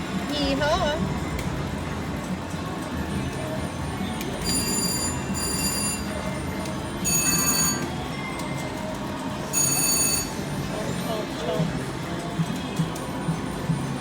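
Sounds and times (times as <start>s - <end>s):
slot machine chimes: 4.3s - 8.4s, 9.4s - 11.2s.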